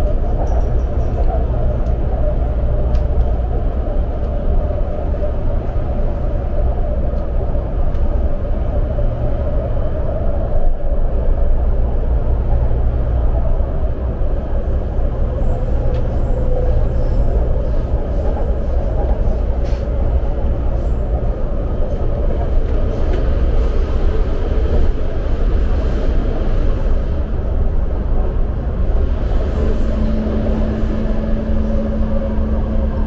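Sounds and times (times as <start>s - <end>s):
train rumble: 0.0s - 33.0s
wavering whine: 27.4s - 33.0s.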